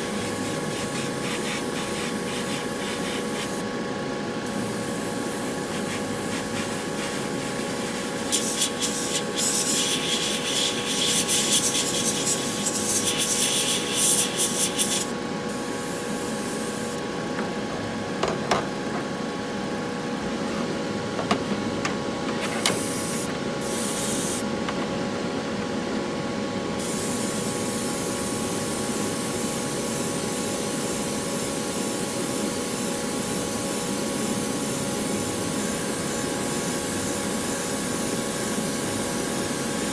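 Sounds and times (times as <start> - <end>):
spray paint hissing: 0.0 - 3.6, 4.5 - 15.1, 22.4 - 24.4, 26.8 - 34.7
fan humming: 0.0 - 39.9.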